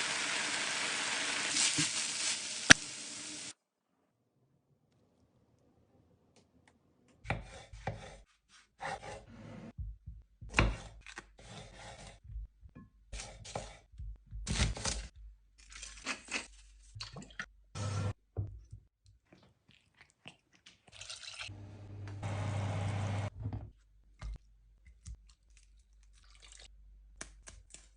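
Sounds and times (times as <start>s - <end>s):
kitchen knocks and scrapes: 23.3s - 24.4s.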